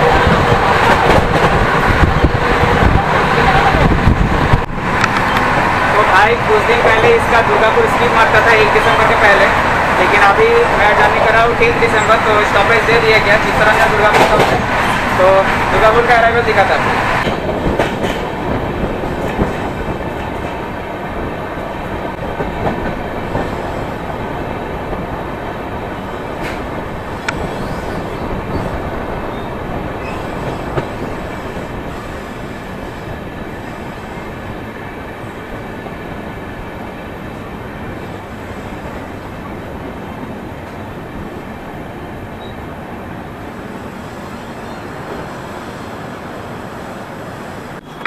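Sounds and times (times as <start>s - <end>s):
train rumbling on rails: 0.0s - 48.0s.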